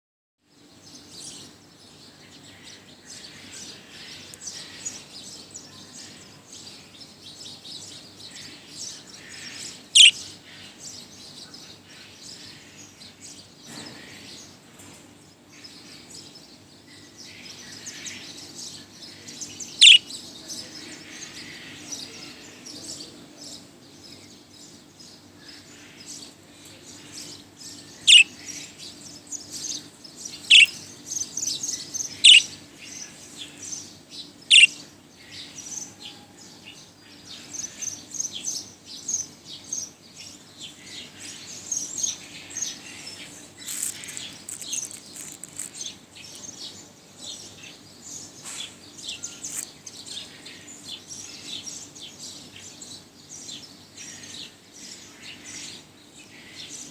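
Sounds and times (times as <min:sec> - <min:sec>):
loud sharp bird calls: 0:02.3 - 0:14.6, 0:16.9 - 0:23.0, 0:24.1 - 0:56.9
budgerigar chattering and warbling: 0:09.9 - 0:10.2, 0:19.8 - 0:20.0, 0:28.0 - 0:28.6, 0:30.4 - 0:30.8, 0:32.1 - 0:32.5, 0:34.5 - 0:34.8, 0:43.6 - 0:45.8, 0:49.4 - 0:49.7.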